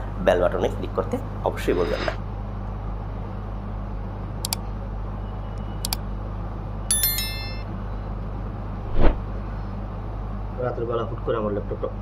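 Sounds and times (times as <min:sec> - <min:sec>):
bright bell-like chime: 0:06.9 - 0:07.7
swish or thump: 0:08.9 - 0:09.2.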